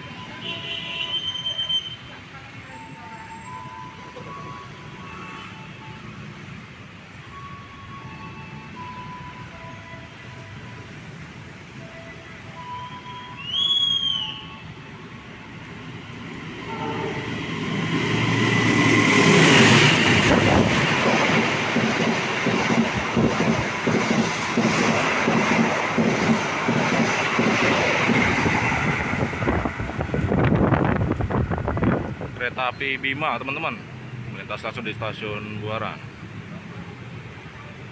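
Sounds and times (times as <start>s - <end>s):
diesel locomotive engine rumble: 13.2s - 37.9s.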